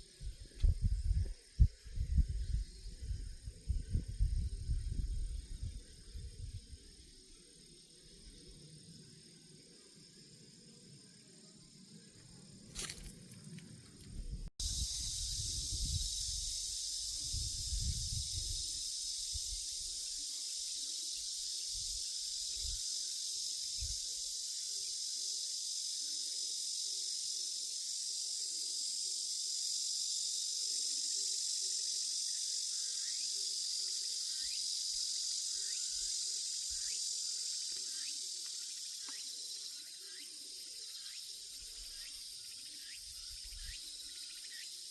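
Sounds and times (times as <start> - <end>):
insect chorus shrilling: 0.0 - 44.9.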